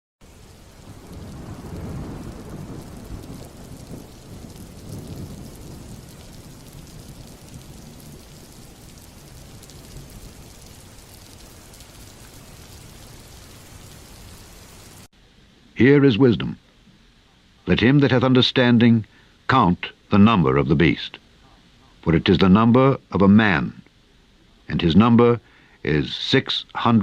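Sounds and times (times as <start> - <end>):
rolling thunder rumble: 0.2 - 15.1
steady rain: 0.2 - 27.0.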